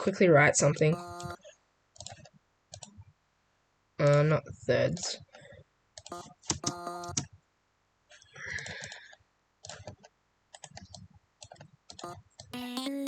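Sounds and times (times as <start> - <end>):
computer mouse and keyboard clicks: 2.0 - 3.0, 6.0 - 7.3, 8.2 - 12.6.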